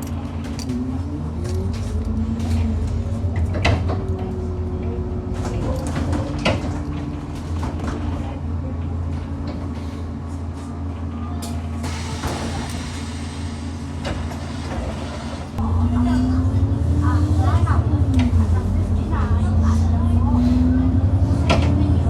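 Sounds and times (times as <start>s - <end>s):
bus engine drone: 0.0s - 22.0s
bus body knocks and rattles: 1.6s - 9.8s.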